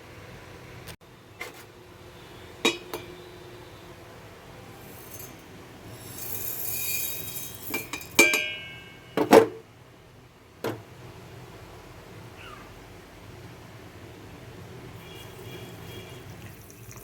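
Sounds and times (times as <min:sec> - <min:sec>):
small utensils rattling: 0:04.8 - 0:08.9.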